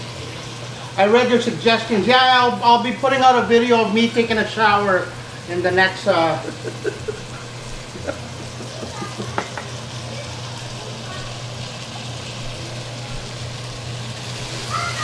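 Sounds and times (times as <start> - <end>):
tomatoes sizzling in a pot: 0.0 - 15.0.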